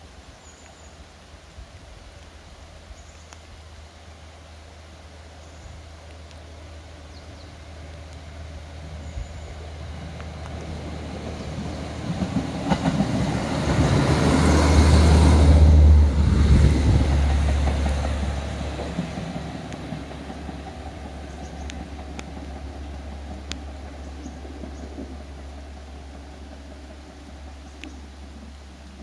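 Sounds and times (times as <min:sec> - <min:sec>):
wheels rumbling on rails: 0:03.8 - 0:29.0
diesel engine drone: 0:06.6 - 0:29.0.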